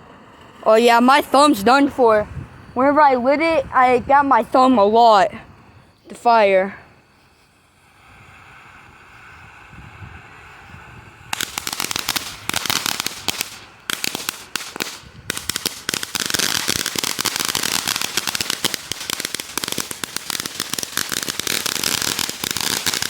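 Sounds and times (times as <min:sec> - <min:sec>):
firework crackling pops: 0:11.2 - 0:23.0.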